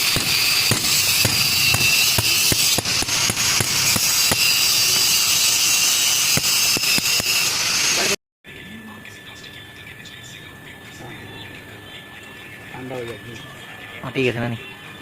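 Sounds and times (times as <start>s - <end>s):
sharp ratchet-like clicks: 0.1s - 8.0s.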